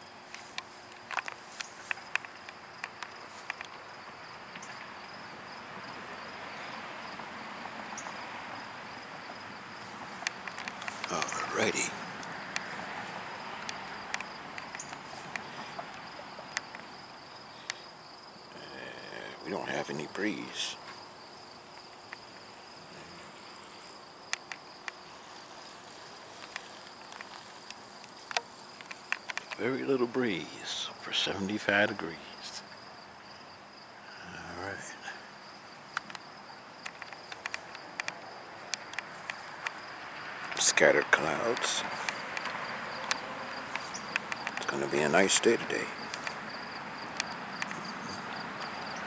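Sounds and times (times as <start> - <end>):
insects chirring: 0.0 - 49.0
sharp clicks: 0.3 - 3.8, 10.2 - 12.8, 13.6 - 15.9, 26.4 - 29.7, 36.8 - 39.8, 40.4 - 46.4.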